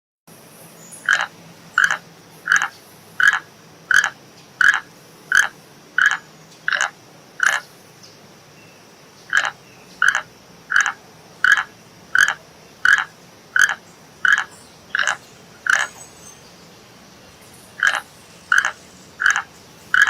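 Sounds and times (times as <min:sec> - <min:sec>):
animal giving short calls: 0:09.3 - 0:15.9.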